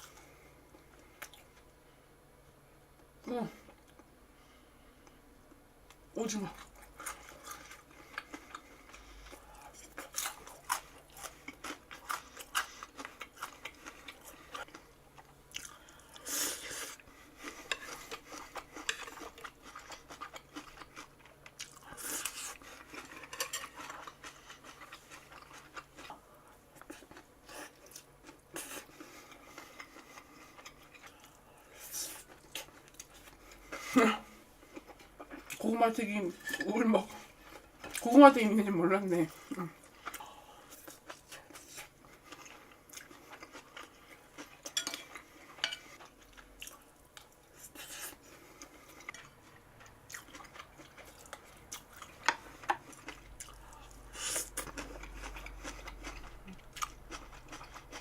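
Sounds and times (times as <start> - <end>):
crunchy food chewing: 6.5 - 34.0, 39.3 - 58.0.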